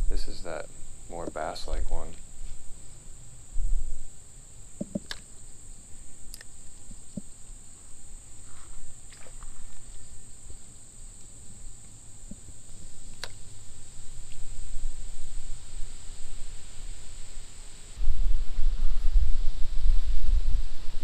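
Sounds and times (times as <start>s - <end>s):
small sharp clicks: 4.8s - 5.3s, 13.1s - 13.4s.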